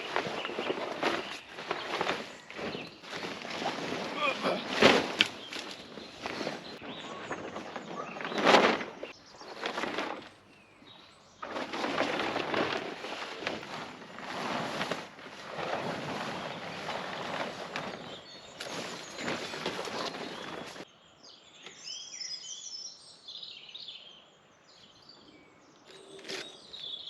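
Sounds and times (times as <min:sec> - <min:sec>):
rustling noise: 0:00.0 - 0:10.7, 0:11.4 - 0:20.8.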